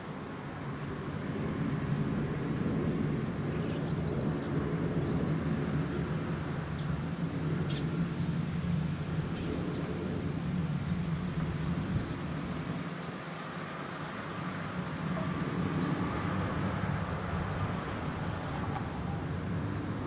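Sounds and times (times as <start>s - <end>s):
harvester engine droning: 8.4s - 20.0s.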